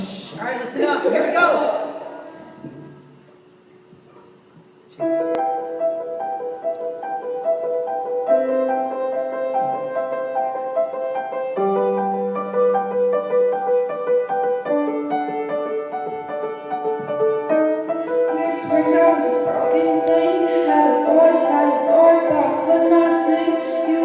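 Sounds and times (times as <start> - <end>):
piano playing: 4.9 - 24.0.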